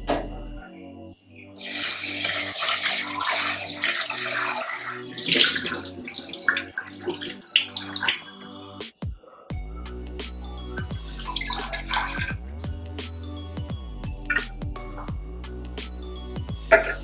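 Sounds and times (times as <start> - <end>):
water running from a tap: 1.6 - 8.6, 10.8 - 12.4.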